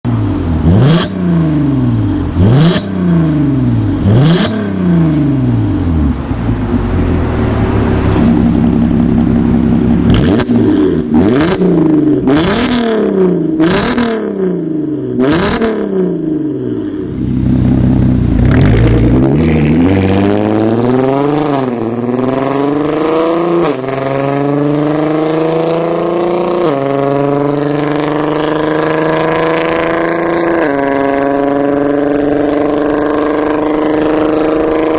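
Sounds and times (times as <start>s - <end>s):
car engine throttle blips: 0.0s - 34.9s
car engine accelerating through gears: 0.2s - 15.9s, 16.6s - 34.9s
exhaust cracks: 5.8s - 12.8s.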